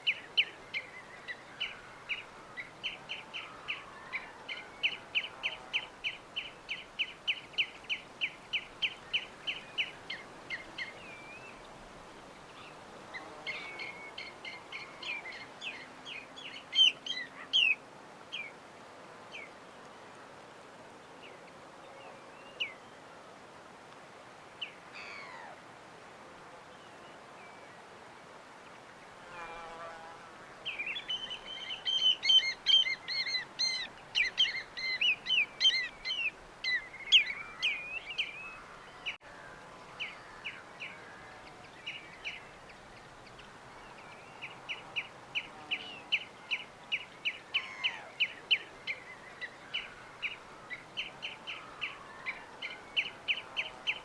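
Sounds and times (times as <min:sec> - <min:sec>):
small birds chirping: 0:00.0 - 0:18.5, 0:30.6 - 0:39.2, 0:39.8 - 0:54.0
faint steady hiss: 0:00.0 - 0:54.0.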